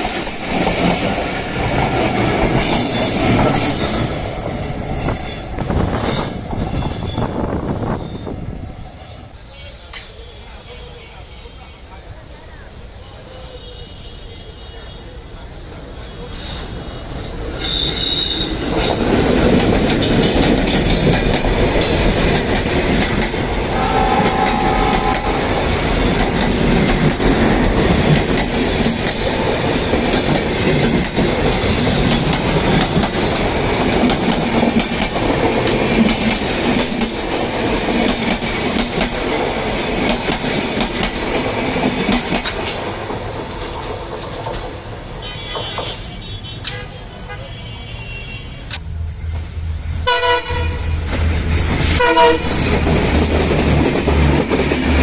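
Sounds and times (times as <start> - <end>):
train wheels clattering on rails: 0.0 - 8.0, 17.4 - 46.0, 49.2 - 55.0
high wheel squeals: 2.7 - 8.4, 17.5 - 18.9, 22.7 - 26.9.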